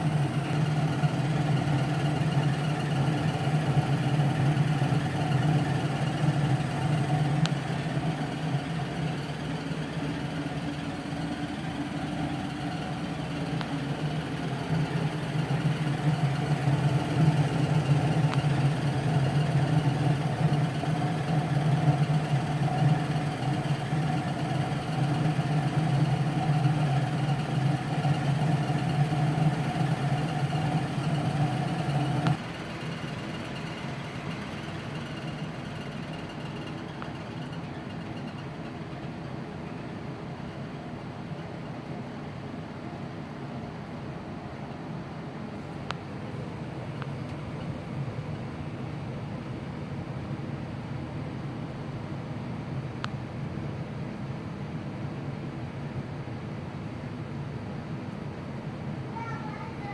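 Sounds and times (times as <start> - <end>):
continuous squeal: 0.0 - 42.0.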